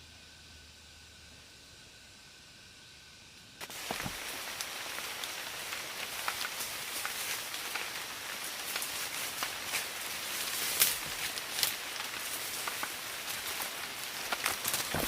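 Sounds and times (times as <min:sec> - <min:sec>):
rain falling: 0:03.6 - 0:15.0.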